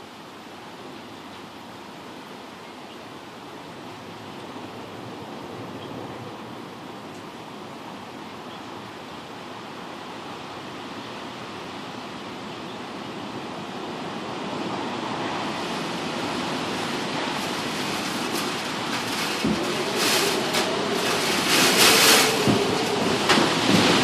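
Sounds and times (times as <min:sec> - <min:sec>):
storm wind rushing: 0:14.3 - 0:24.0.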